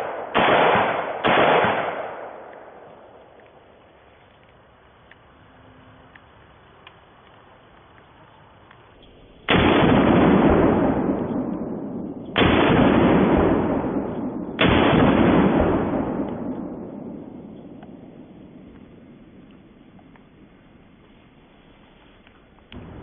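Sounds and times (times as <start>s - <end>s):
rifle shots with echo: 0.0s - 3.8s, 9.3s - 20.0s.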